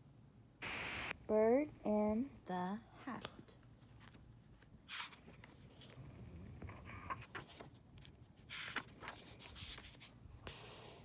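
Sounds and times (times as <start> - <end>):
book rustling and clicks: 6.7 - 10.2.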